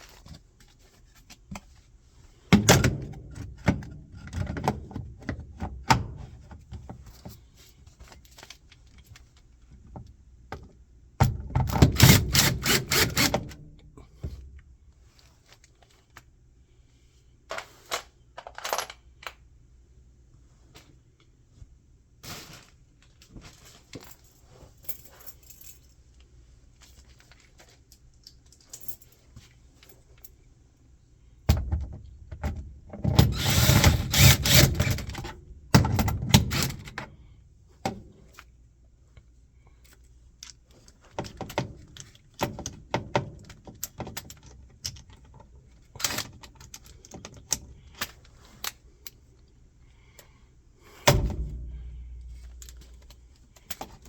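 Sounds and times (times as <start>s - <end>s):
tools clicking and rattling: 17.6s - 19.4s, 51.0s - 54.0s
tools clattering: 51.0s - 54.0s.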